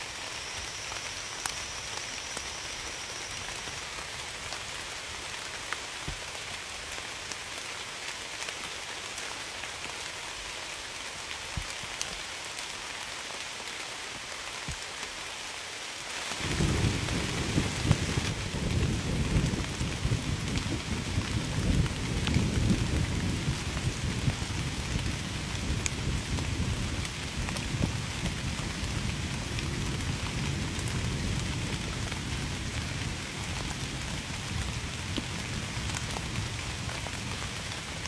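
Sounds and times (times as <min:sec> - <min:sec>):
rain hissing: 0:00.0 - 0:38.0
low rolling thunder: 0:16.4 - 0:37.7.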